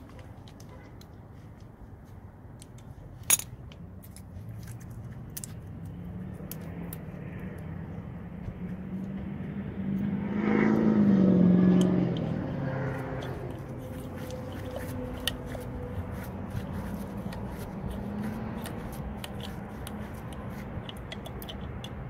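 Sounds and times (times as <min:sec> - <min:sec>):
vehicle engine passing: 0:04.5 - 0:22.0.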